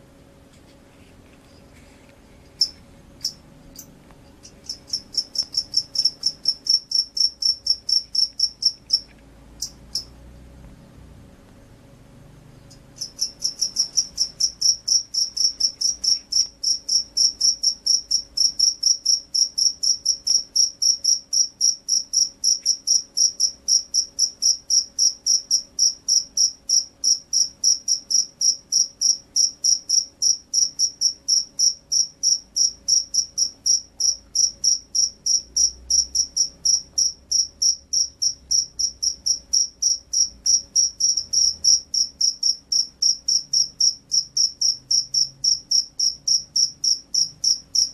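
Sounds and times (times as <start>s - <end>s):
cricket chirping: 2.6s - 10.9s, 12.5s - 47.9s.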